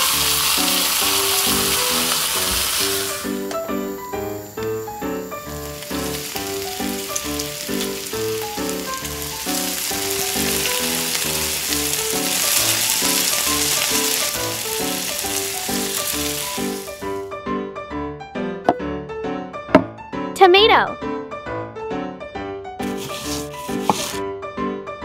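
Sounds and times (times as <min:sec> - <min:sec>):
food sizzling in hot oil: 0:00.0 - 0:17.2, 0:22.8 - 0:24.2
plucked background music: 0:00.0 - 0:17.3.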